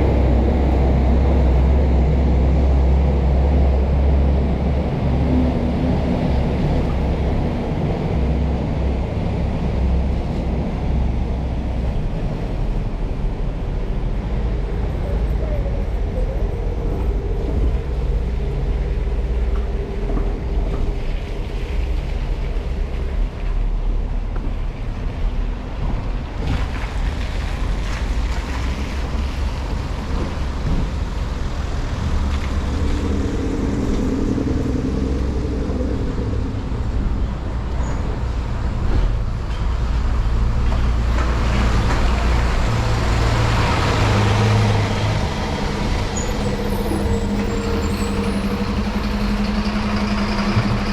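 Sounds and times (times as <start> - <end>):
vehicle engines running: 0.0 - 50.9
loud vehicle passing: 28.8 - 38.3, 41.3 - 50.9.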